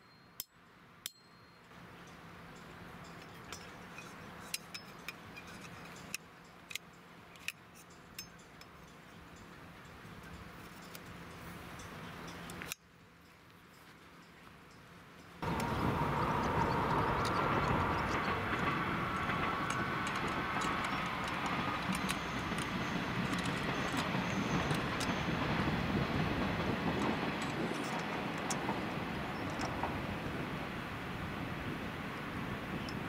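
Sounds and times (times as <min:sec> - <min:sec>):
faint whine: 0:00.0 - 0:33.0
train rumbling past: 0:15.4 - 0:33.0
light clicks: 0:16.4 - 0:25.2.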